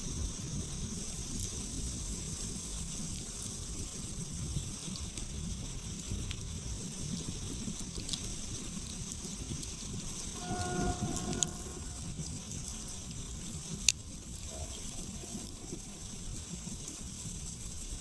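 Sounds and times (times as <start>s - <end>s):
campfire flames rushing: 0.0s - 10.4s, 12.0s - 18.0s
fire crackles and pops: 0.0s - 18.0s
short tonal sound: 10.4s - 12.9s.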